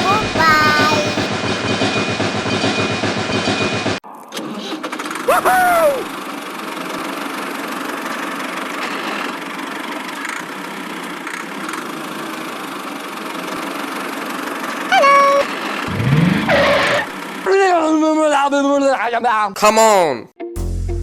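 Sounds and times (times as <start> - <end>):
high-pitched voiced exclamation: 0.0 - 1.3, 5.3 - 6.1, 14.9 - 15.5
small motor running: 15.8 - 17.4.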